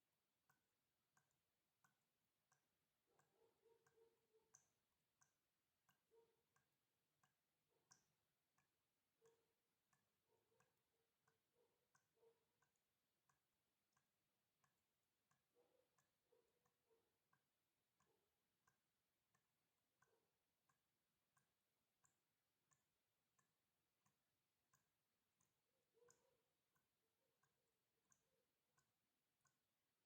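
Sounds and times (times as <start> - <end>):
faint water dripping: 0.0 - 30.0.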